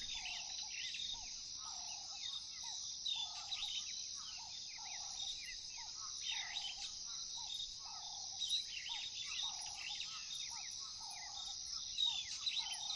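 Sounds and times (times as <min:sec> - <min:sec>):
birds chirping: 0:00.0 - 0:00.5
crickets trilling: 0:00.0 - 0:12.9.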